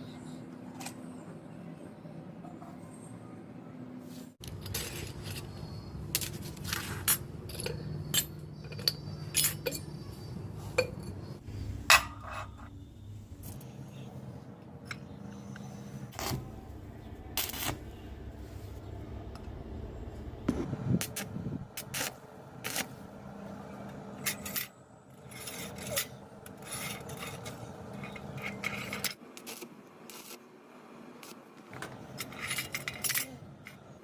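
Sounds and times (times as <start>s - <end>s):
small metal objects clinking: 4.4s - 10.0s, 32.1s - 33.9s.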